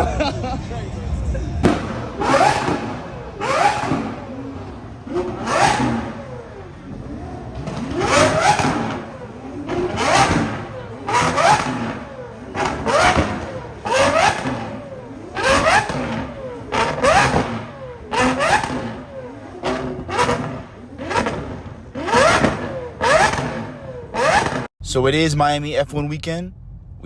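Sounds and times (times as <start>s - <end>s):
car engine revving: 0.0s - 25.2s.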